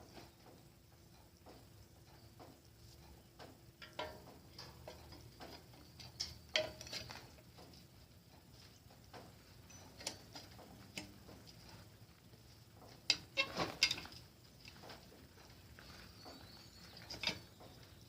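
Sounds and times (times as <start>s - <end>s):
metallic clicks of bicycle parts: 2.4s - 7.8s, 9.1s - 11.9s, 12.9s - 15.6s, 17.0s - 17.8s.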